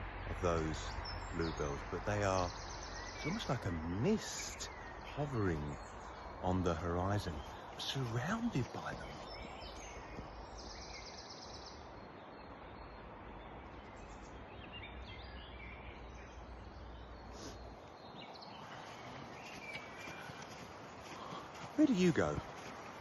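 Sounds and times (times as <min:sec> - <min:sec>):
songbirds chirping: 0:00.0 - 0:23.0
steady background hiss: 0:00.0 - 0:23.0.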